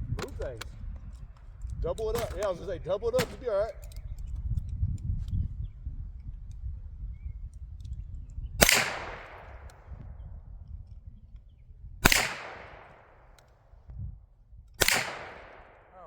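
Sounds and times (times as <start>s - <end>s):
gunshots with echo: 3.2s - 3.6s, 8.6s - 9.9s, 12.0s - 13.3s, 14.8s - 16.0s.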